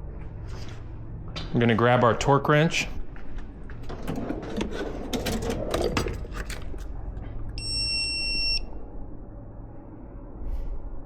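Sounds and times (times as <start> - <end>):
tools clicking and clattering: 3.8 - 7.0
high-pitched electronic beep: 7.6 - 8.7.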